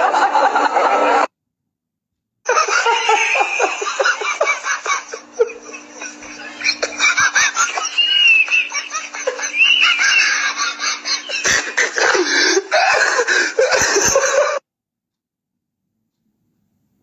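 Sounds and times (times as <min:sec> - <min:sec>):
people laughing and giggling: 0:00.0 - 0:01.3, 0:02.5 - 0:14.6
steady low hum: 0:02.5 - 0:14.6.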